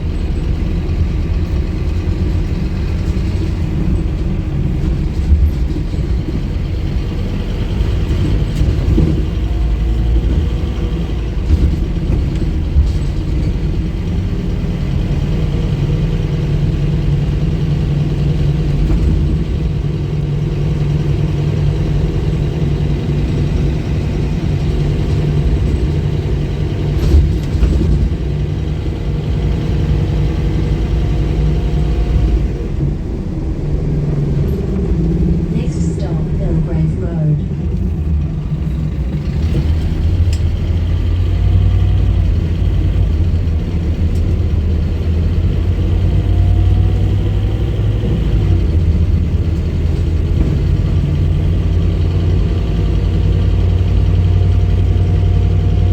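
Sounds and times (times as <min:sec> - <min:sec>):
bus diesel engine running: 0:00.0 - 0:55.9
knocks and rattles: 0:00.1 - 0:14.2, 0:23.4 - 0:30.4.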